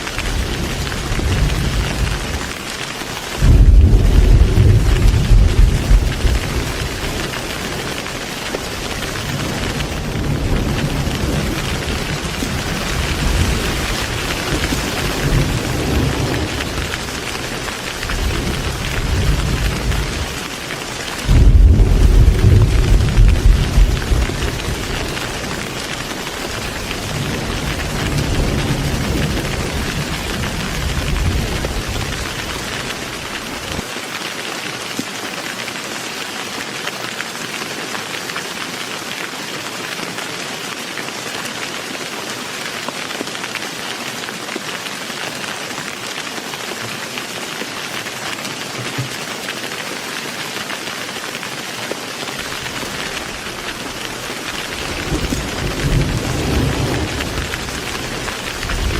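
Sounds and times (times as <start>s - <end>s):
heavy rain pouring: 0.0s - 58.9s
low thunder rumble: 3.4s - 7.8s, 8.7s - 20.4s, 21.2s - 33.8s, 52.5s - 58.9s.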